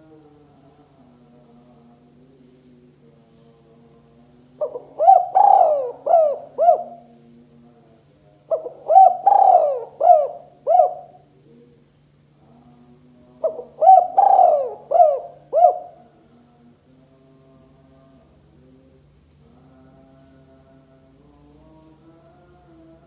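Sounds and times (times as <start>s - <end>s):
dove cooing: 4.6s - 7.1s, 8.5s - 11.2s, 13.4s - 16.1s.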